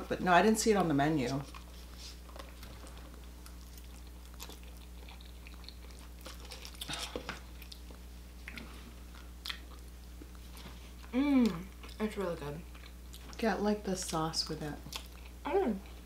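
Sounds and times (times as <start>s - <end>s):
low steady hum: 0.0s - 16.0s
chewing and biting food: 1.4s - 11.1s.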